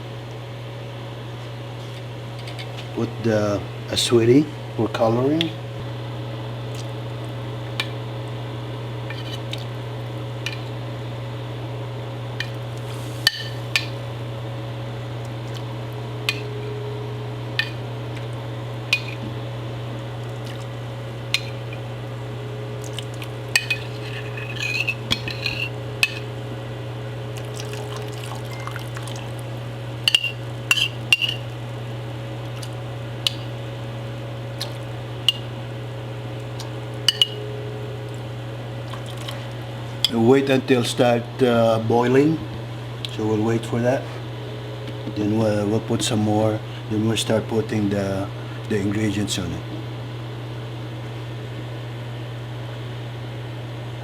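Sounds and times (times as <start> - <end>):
steady low hum: 0.0 - 54.0
water being stirred: 22.8 - 26.3, 30.1 - 31.5
utensil clinking against pot: 23.6 - 26.3, 30.1 - 31.4, 37.1 - 37.4.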